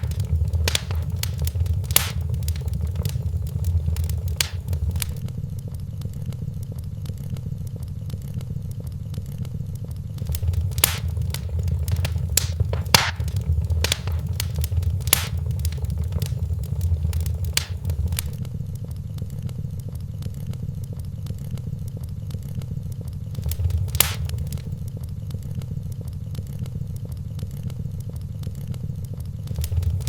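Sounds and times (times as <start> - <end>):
fire rumbling: 0.0 - 5.2, 10.2 - 18.4, 23.3 - 24.9, 29.5 - 30.0
wood fire crackling and popping: 0.0 - 5.2, 10.2 - 18.4, 23.3 - 24.9, 29.5 - 30.0.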